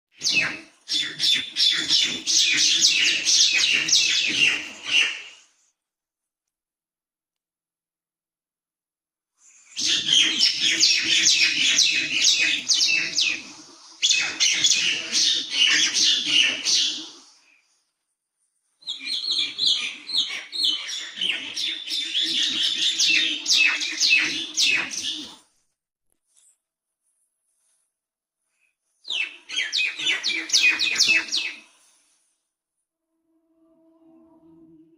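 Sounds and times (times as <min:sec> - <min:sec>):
small birds chirping: 0:00.2 - 0:05.4, 0:09.5 - 0:17.4.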